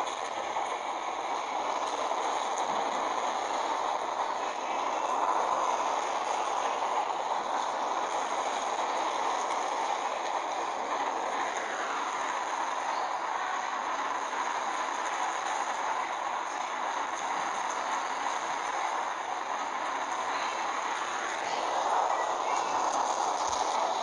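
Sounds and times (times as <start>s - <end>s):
train running: 0.0s - 24.0s.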